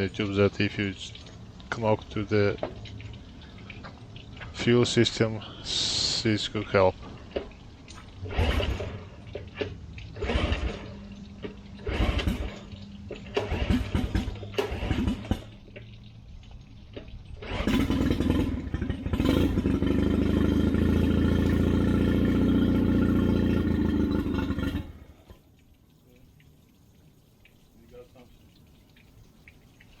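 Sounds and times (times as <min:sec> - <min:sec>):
outboard motor cranking: 0:07.3 - 0:16.0, 0:17.0 - 0:25.4
outboard motor running: 0:08.2 - 0:16.0, 0:17.4 - 0:25.3.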